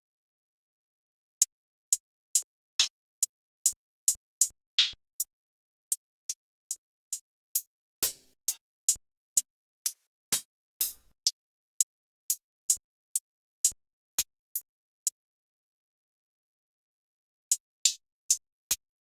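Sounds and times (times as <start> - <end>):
snare and clap samples: 4.8 - 5.0, 8.0 - 8.4, 10.8 - 11.1
hi-hat and percussion hits: 10.8 - 11.2.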